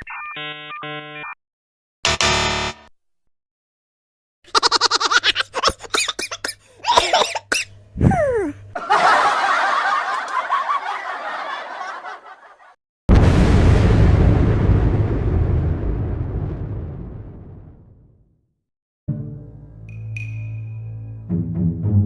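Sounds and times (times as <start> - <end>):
laughter sound effects: 4.5 - 6.2, 8.0 - 12.8
loud blast: 13.1 - 18.2.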